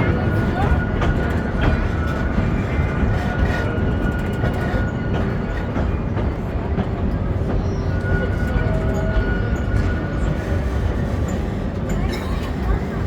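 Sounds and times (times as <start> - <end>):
train cars rumbling on track: 0.0 - 13.0.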